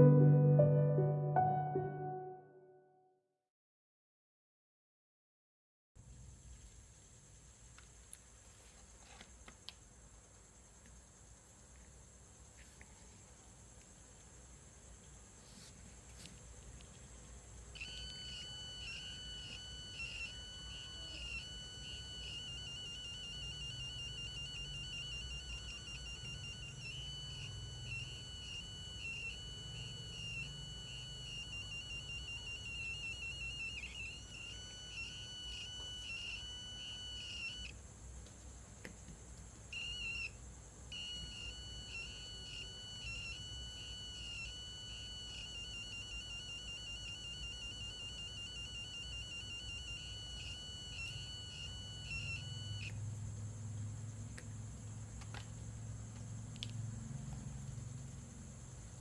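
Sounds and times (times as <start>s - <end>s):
electronic buzzer pulsing tone: 17.8s - 37.8s, 39.8s - 53.0s.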